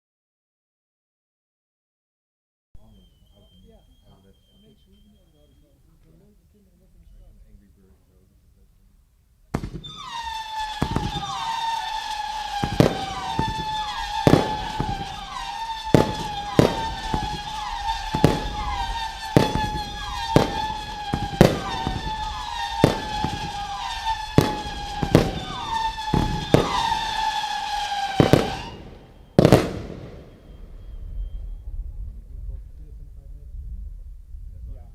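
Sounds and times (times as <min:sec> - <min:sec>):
firework shots whistling: 0:02.8 - 0:06.3, 0:09.5 - 0:32.2
firework bangs: 0:09.4 - 0:32.2.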